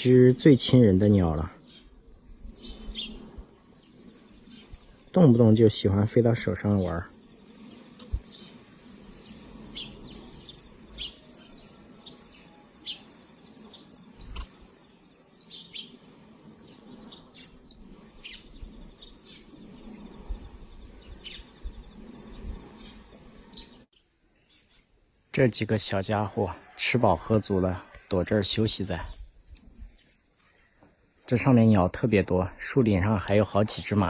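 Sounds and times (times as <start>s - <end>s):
small finches chirping: 0.0s - 14.4s, 15.0s - 20.2s
sharp click: 14.2s - 14.5s.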